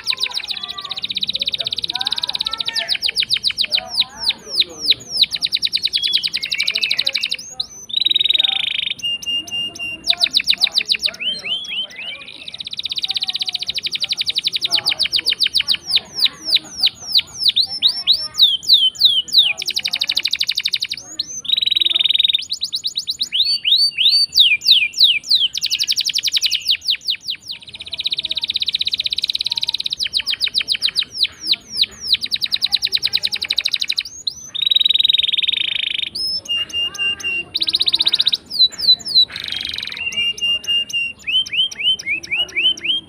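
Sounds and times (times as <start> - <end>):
canary singing: 0.0 - 43.0.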